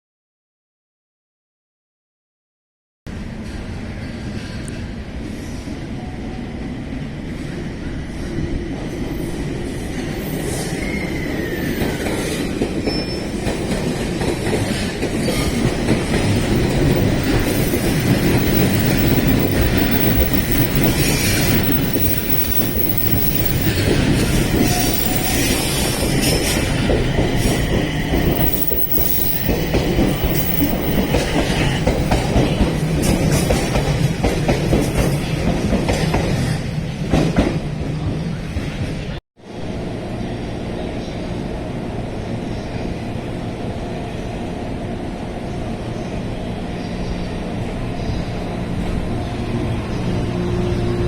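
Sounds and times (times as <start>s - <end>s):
train rumbling past: 3.1s - 51.0s
wheel squeal: 10.1s - 13.6s, 14.8s - 32.4s.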